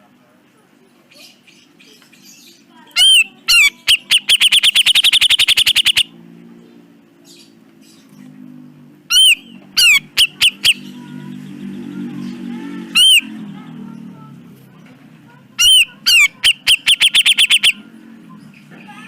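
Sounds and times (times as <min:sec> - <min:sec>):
bird calling with sharp notes: 0:03.0 - 0:06.1, 0:09.1 - 0:11.1, 0:12.8 - 0:13.4, 0:15.6 - 0:17.9.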